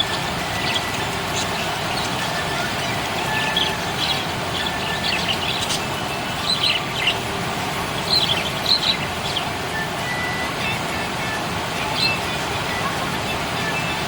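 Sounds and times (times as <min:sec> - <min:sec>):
budgerigars chirping: 0:00.0 - 0:09.6
steady background noise: 0:00.0 - 0:14.0.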